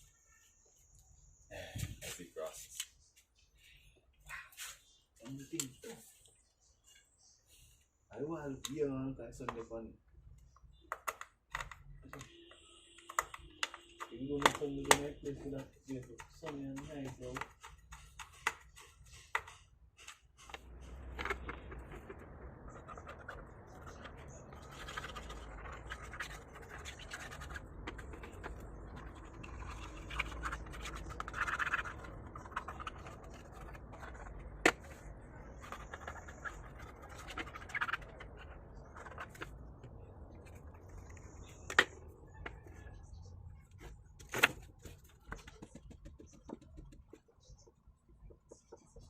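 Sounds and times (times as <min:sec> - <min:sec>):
scratching and scraping: 0:13.1 - 0:49.0.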